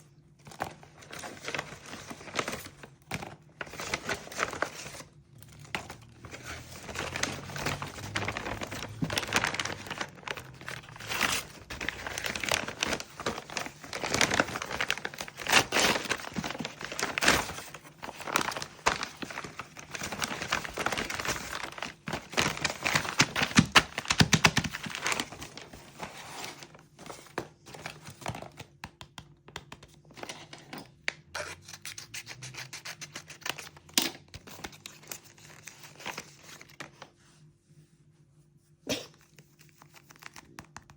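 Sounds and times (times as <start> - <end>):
packaging crinkling and tearing: 0.5 - 26.8, 39.5 - 40.9.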